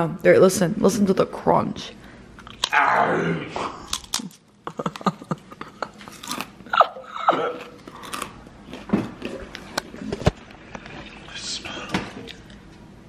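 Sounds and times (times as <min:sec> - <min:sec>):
crunching crisp chips: 0:03.8 - 0:04.4, 0:06.0 - 0:06.6, 0:07.5 - 0:09.8.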